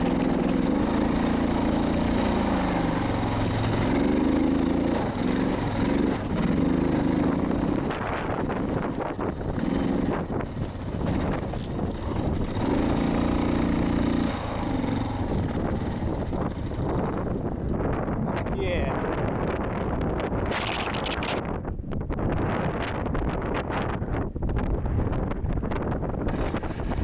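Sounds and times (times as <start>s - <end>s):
motorcycle engine revving: 0.0s - 18.3s, 26.3s - 27.0s
wind buffeting microphone: 0.0s - 27.0s.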